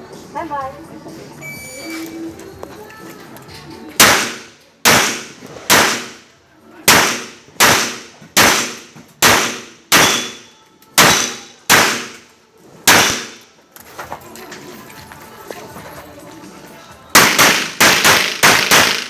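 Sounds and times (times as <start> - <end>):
pistol shots echoing: 4.0 - 6.2, 6.9 - 12.2, 12.9 - 13.4, 17.2 - 19.0.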